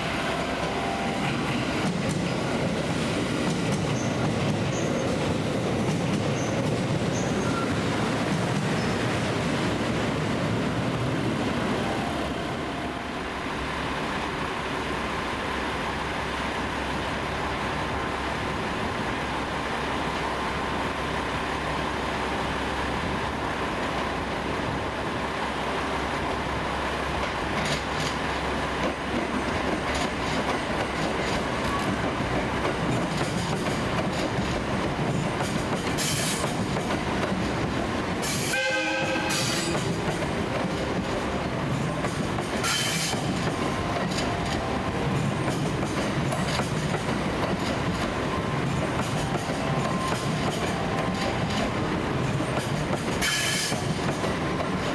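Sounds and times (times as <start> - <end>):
train moving: 0.0 - 54.9
wheels clicking over rail joints: 27.2 - 54.9
short horn-like tone: 38.5 - 39.7.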